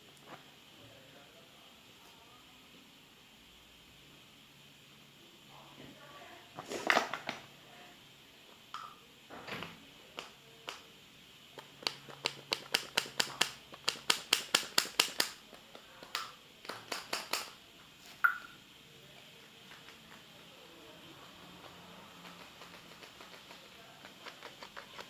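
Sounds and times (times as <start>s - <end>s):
sharp clicking taps: 11.6s - 17.5s.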